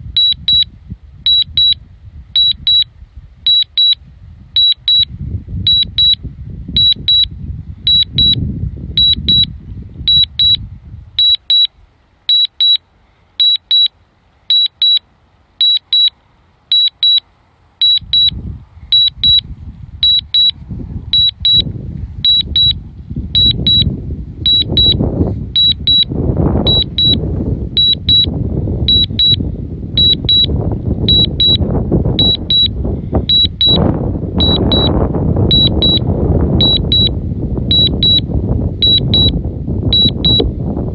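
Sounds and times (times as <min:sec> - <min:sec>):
wind buffeting microphone: 0:00.0 - 0:11.9, 0:17.9 - 0:40.9
remote controller double beeps: 0:00.1 - 0:01.8, 0:02.4 - 0:02.9, 0:03.5 - 0:04.0, 0:04.6 - 0:05.1, 0:05.7 - 0:06.2, 0:06.8 - 0:08.4, 0:09.0 - 0:09.5, 0:10.1 - 0:10.6, 0:11.2 - 0:11.7, 0:12.3 - 0:12.8, 0:13.4 - 0:13.9, 0:14.5 - 0:15.0, 0:15.6 - 0:17.2, 0:17.8 - 0:19.4, 0:20.0 - 0:25.0, 0:25.6 - 0:27.2, 0:27.8 - 0:29.4, 0:30.0 - 0:31.6, 0:32.2 - 0:40.5.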